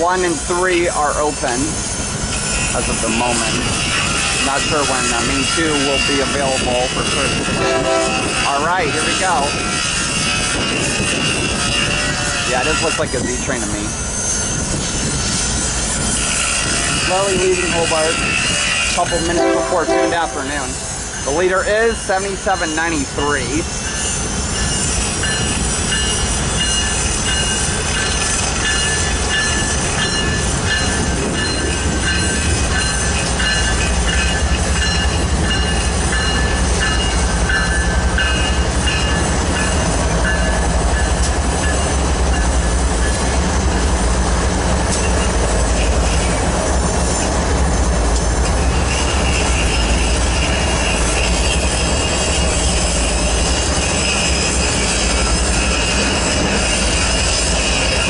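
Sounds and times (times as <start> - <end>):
diesel train rumble: 0.0 - 58.0
wheel squeal: 13.9 - 19.3, 48.8 - 58.0.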